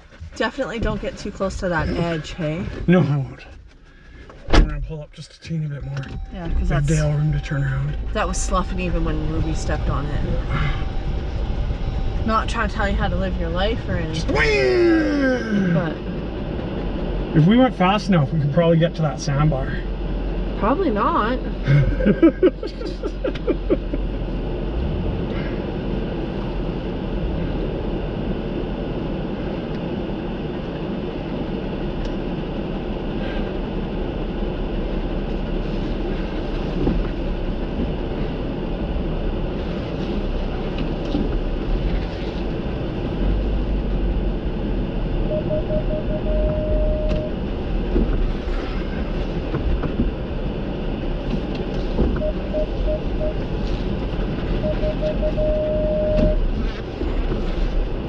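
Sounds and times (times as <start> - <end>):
engine and tyre rumble: 0.0 - 58.0
short beeps: 5.8 - 8.6, 45.3 - 47.4, 52.2 - 53.4, 54.6 - 56.4.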